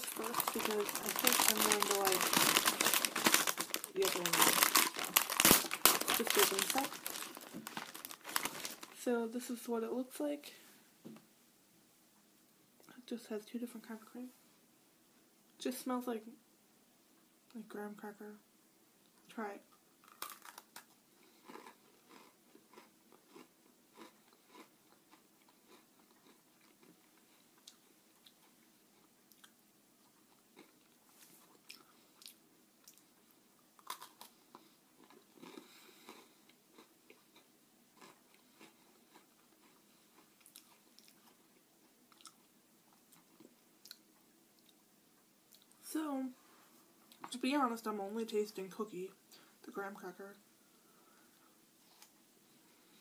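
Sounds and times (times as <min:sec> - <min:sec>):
cookie crunching while chewing: 0:00.0 - 0:08.9, 0:20.0 - 0:44.8.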